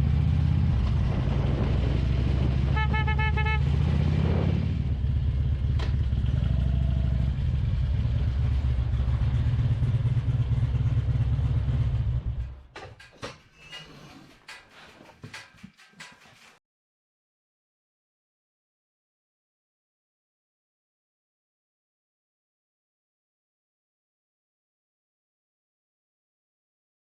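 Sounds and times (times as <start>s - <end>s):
motorcycle engine rumbling: 0.0s - 16.6s
clicks and knocks: 12.4s - 16.6s.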